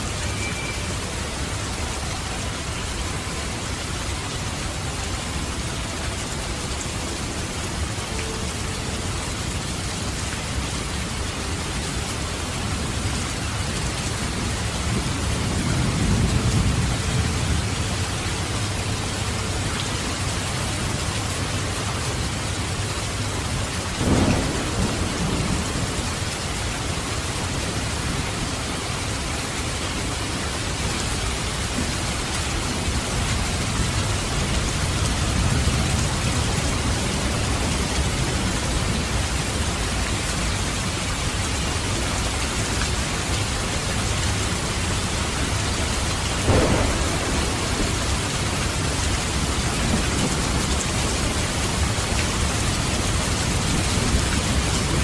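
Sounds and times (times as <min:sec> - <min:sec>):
heavy rain: 0:00.0 - 0:55.0
sharp thunder claps: 0:24.0 - 0:26.2, 0:46.4 - 0:51.4
low thunder rumbling: 0:24.0 - 0:28.2, 0:45.3 - 0:55.0.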